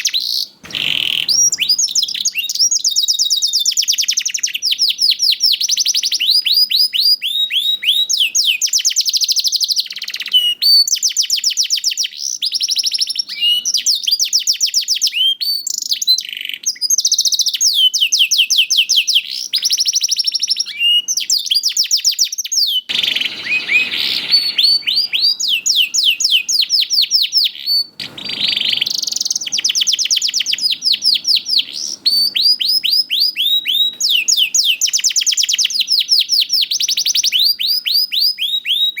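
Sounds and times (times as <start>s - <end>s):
canary singing trills: 0.0s - 39.0s
harsh noisy rasp: 22.9s - 26.3s.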